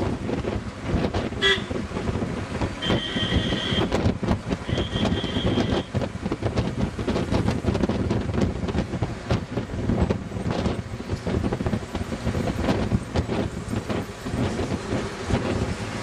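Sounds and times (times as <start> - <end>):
vehicle rumbling and rattling: 0.0 - 16.0
high-pitched horn beeping: 1.4 - 1.7, 2.8 - 4.0, 4.6 - 5.9.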